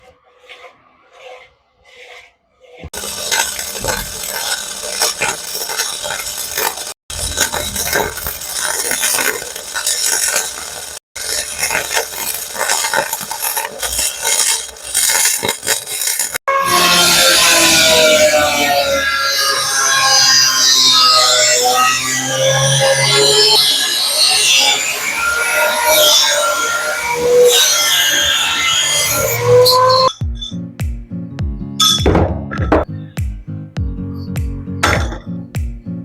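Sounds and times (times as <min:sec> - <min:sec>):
metallic scraping and clattering: 0:00.0 - 0:18.4.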